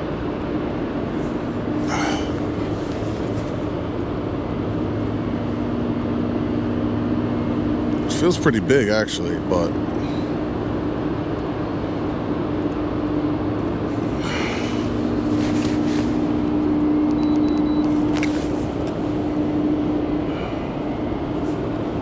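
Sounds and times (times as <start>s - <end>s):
low steady hum: 0.0s - 22.0s
wind: 0.0s - 22.0s.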